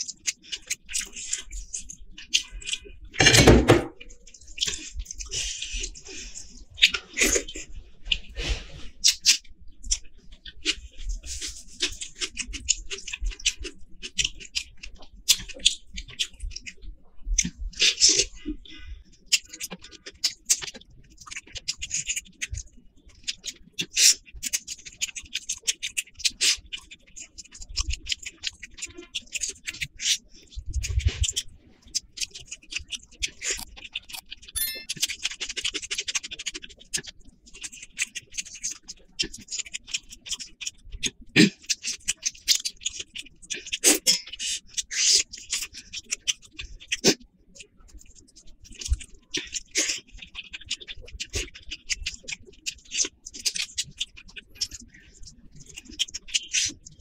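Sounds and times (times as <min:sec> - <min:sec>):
wet chewing: 0:00.0 - 0:03.3, 0:04.0 - 0:57.0
food squelching by hand: 0:00.1 - 0:16.8, 0:47.9 - 0:57.0.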